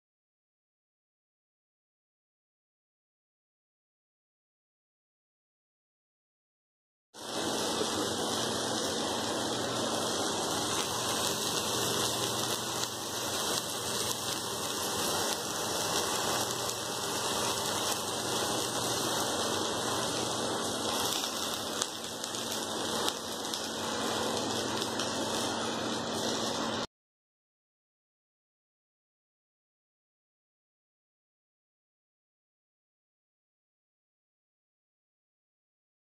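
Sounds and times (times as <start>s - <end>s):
vegetables frying in oil: 7.2s - 26.9s.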